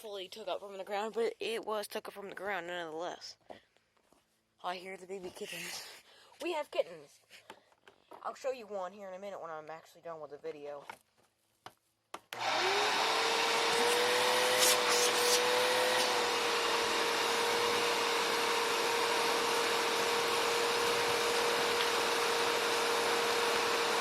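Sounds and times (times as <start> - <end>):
vacuum cleaner motor whine: 12.4 - 24.0.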